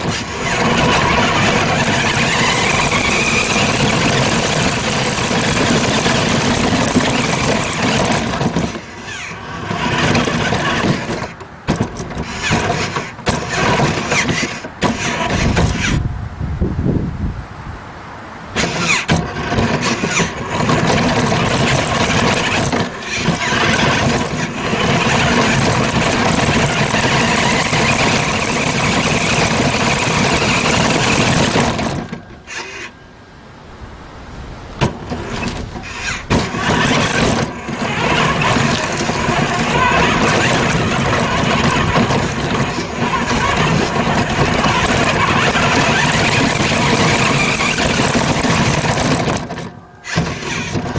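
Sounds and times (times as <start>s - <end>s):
rc truck running with squeal: 0.0s - 16.0s, 18.6s - 33.1s, 35.1s - 50.9s.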